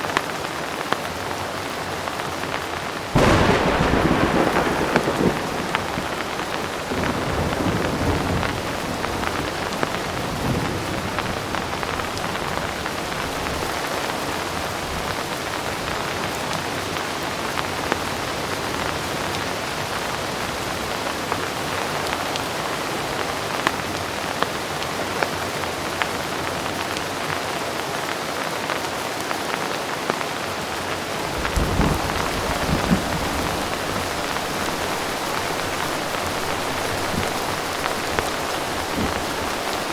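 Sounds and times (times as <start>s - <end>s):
heavy rain: 0.0s - 39.9s
distant thunder rumbling: 3.1s - 15.1s, 30.7s - 39.9s.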